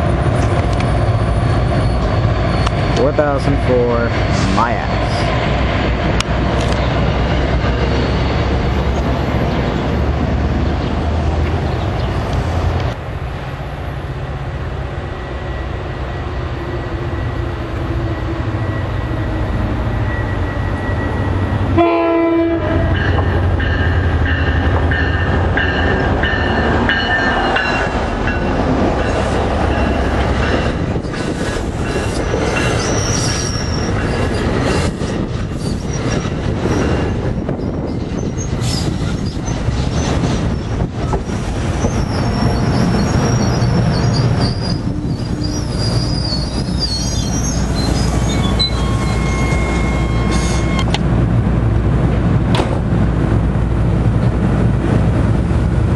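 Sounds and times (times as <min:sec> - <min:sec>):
train passing with low rumble: 0:00.0 - 0:55.9
train horn: 0:21.7 - 0:23.0, 0:48.4 - 0:50.8.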